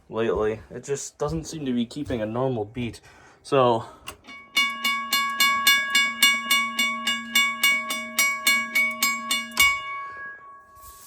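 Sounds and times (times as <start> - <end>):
railroad crossing bell ringing: 4.2 - 11.0.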